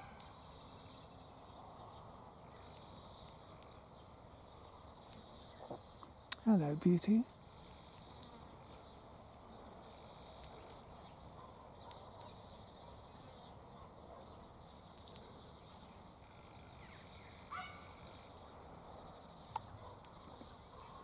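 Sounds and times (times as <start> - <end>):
lower bird call: 16.3 - 18.4.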